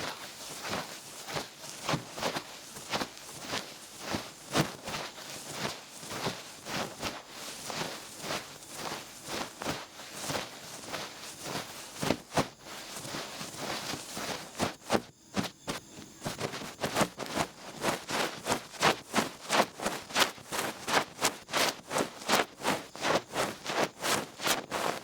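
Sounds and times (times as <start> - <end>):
feather brushing in ear: 0.0 - 15.0.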